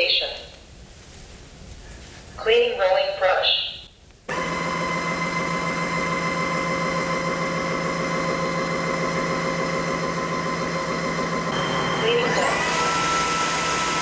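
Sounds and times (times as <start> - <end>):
vacuum mop motor humming: 4.3 - 14.0.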